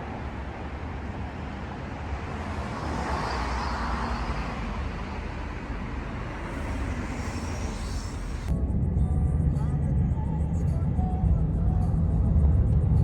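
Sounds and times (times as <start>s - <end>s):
road traffic rumble: 0.0s - 8.8s.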